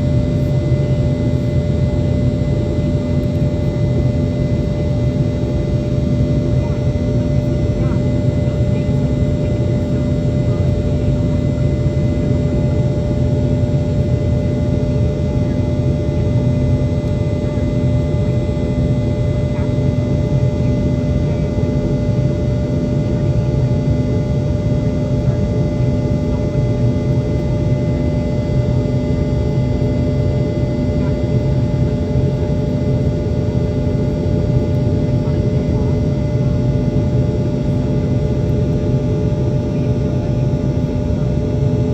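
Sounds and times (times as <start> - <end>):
constant humming tones: 0.0 - 41.9
jet engine roar in cabin: 0.0 - 41.9.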